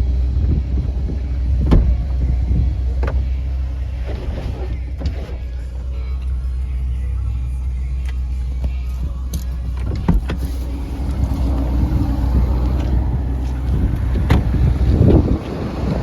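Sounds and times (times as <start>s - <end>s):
car engine low rumble: 0.0s - 16.0s.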